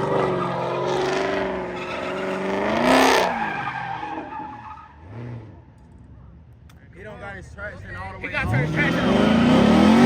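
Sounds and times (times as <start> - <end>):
car engine revving hard: 8.4 - 10.0.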